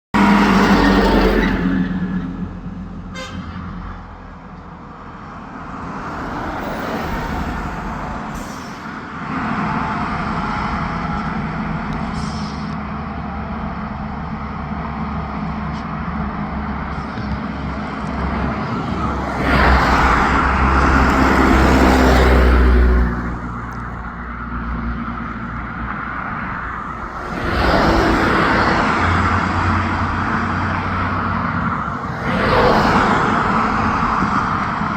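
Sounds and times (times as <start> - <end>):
bus engine running: 0.2 - 34.9
horn sounding: 0.7 - 3.9.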